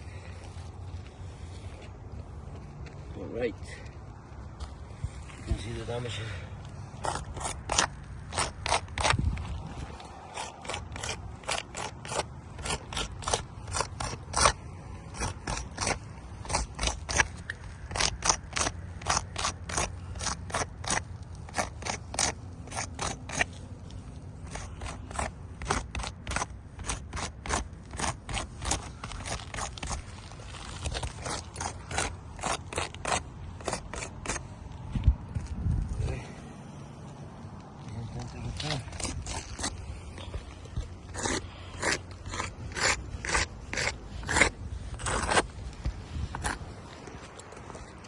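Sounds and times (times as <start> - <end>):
footsteps crunching on a roof: 0.4 - 6.1.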